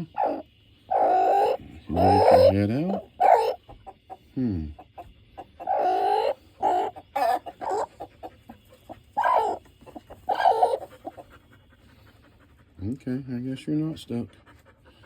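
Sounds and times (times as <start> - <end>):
chicken drawn-out calls: 0.0 - 11.6
chickens clucking: 0.0 - 12.7.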